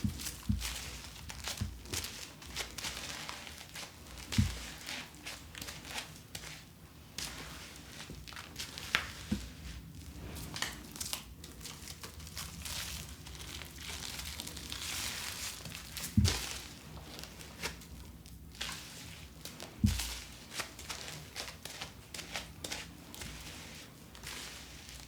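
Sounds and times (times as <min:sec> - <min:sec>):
plastic packaging crinkling: 0:10.9 - 0:17.4.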